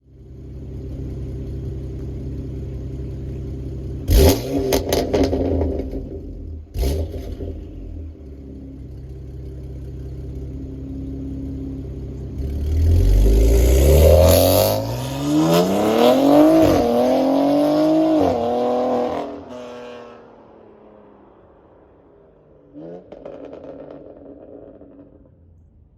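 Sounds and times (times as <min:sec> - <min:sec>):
car engine idling: 0:00.0 - 0:13.8
car accelerating loudly: 0:04.0 - 0:08.2, 0:12.3 - 0:22.0, 0:22.7 - 0:25.4
engine revving with crackles: 0:04.0 - 0:08.2, 0:12.3 - 0:20.0, 0:22.8 - 0:25.4.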